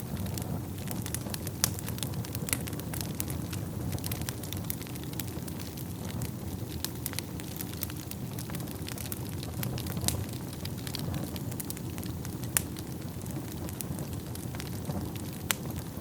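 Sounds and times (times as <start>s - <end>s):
fire crackles and pops: 0.0s - 16.0s
low rumble of flames: 0.0s - 16.0s.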